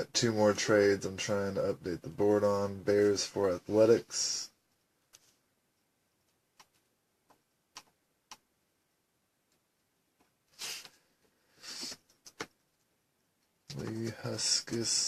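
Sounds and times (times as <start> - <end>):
computer mouse and keyboard clicks: 6.2 - 8.5, 11.8 - 12.6.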